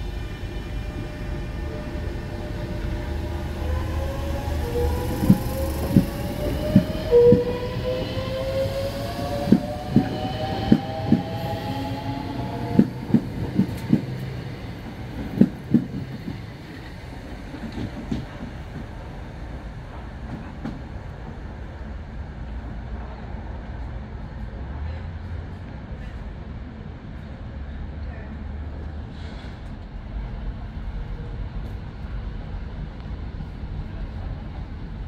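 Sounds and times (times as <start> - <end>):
traction motor whine rising: 0.1 - 13.0.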